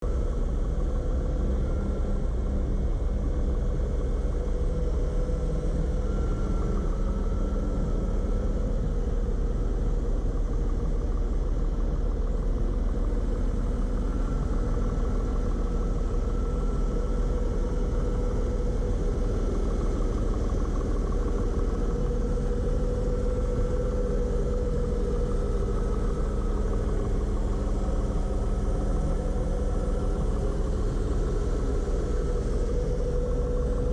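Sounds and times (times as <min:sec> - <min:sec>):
car engine idling: 0:17.5 - 0:33.9.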